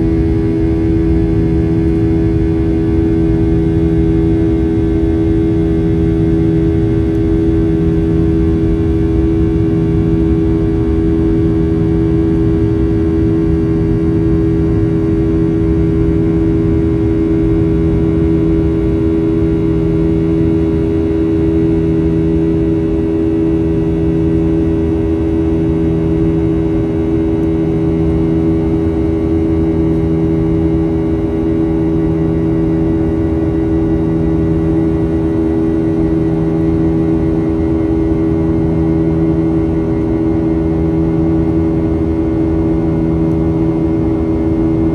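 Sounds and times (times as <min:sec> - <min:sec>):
airliner cabin engine drone: 0:00.0 - 0:44.9.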